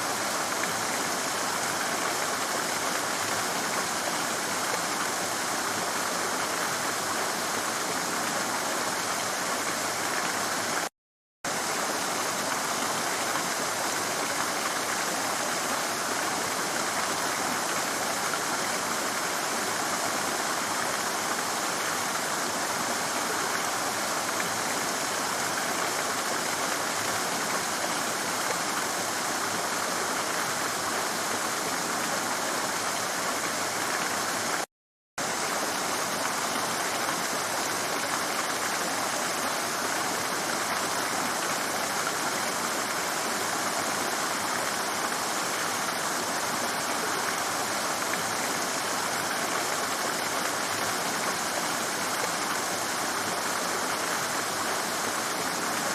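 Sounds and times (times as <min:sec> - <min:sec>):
stream rushing over rocks: 0:00.0 - 0:10.9, 0:11.5 - 0:55.9.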